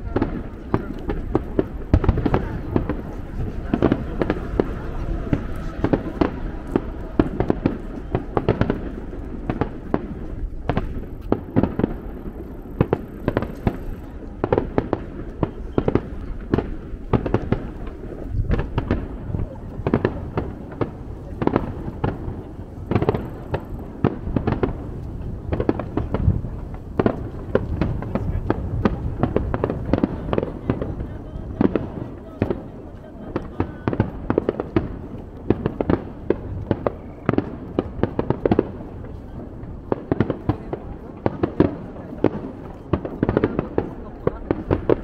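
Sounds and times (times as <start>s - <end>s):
low rumble: 0.0s - 11.3s
fireworks bursting: 0.0s - 45.0s.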